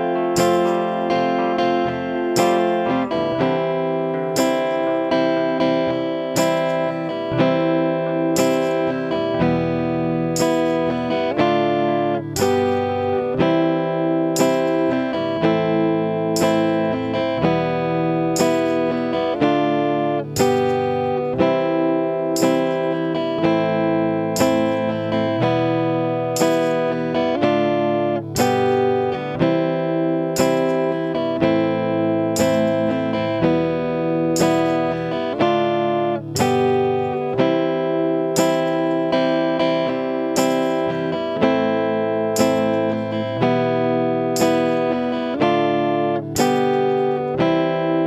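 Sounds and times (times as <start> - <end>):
guitar strumming chords: 0.0 - 48.0.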